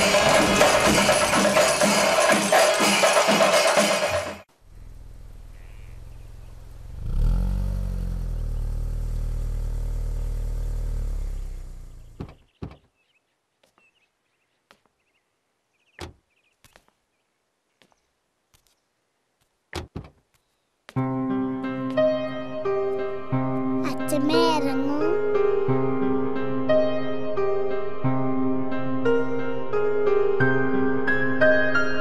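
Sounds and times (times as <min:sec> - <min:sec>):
vehicle engine running: 0:04.5 - 0:12.4.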